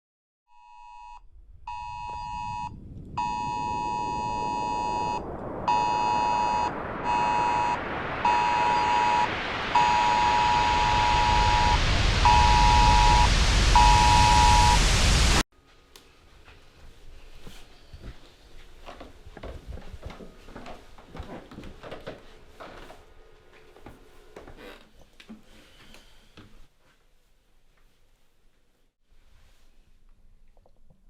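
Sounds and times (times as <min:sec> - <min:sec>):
electronic beeping: 0:01.7 - 0:15.0
hiss of noise: 0:04.0 - 0:15.4.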